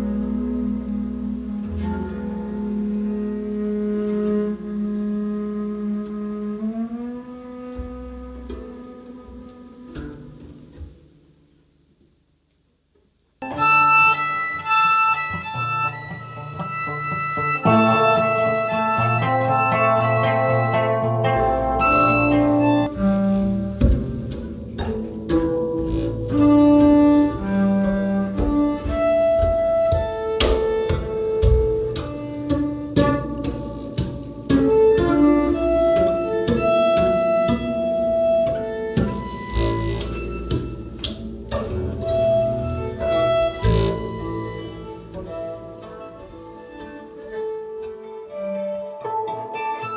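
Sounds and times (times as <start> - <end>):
violin: 0.0 - 11.0, 13.4 - 49.9
acoustic guitar notes: 13.4 - 26.4, 48.4 - 49.9
acoustic guitar: 13.4 - 28.7, 35.8 - 49.9.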